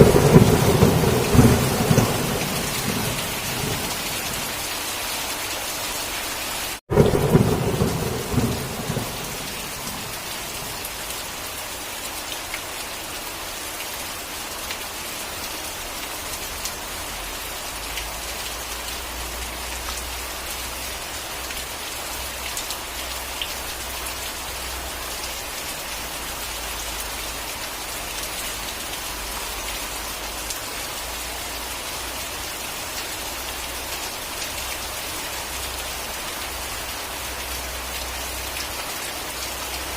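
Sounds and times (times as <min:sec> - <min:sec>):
thunder clap and rumble: 0:00.0 - 0:04.6, 0:06.9 - 0:11.0
rain hissing: 0:00.0 - 0:14.6.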